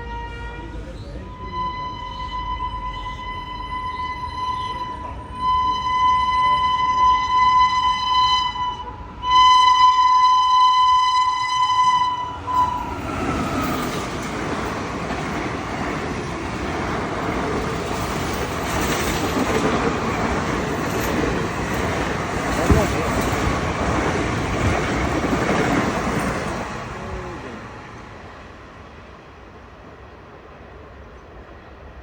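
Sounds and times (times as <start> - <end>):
locomotive horn blasts: 0.0 - 12.9.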